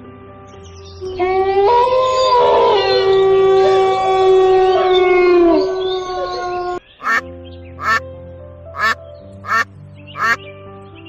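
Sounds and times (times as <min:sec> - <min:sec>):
background music with held notes: 0:00.0 - 0:11.0
short loud animal calls: 0:07.8 - 0:08.0, 0:08.8 - 0:09.6, 0:10.2 - 0:10.4.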